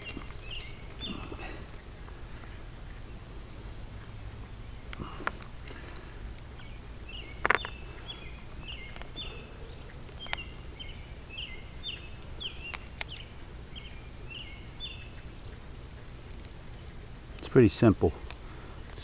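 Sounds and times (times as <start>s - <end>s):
bird chirping: 0.0s - 1.9s, 4.5s - 15.7s.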